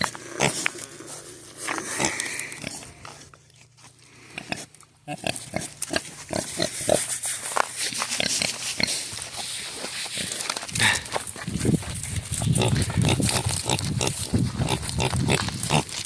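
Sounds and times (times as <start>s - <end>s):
pigs grunting: 0.0s - 3.4s, 4.0s - 7.1s, 10.1s - 11.2s, 12.0s - 16.0s.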